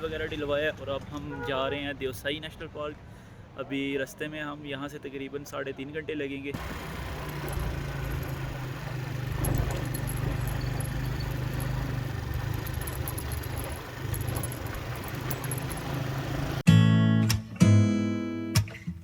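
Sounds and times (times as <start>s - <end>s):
motorcycle engine running: 6.6s - 16.6s.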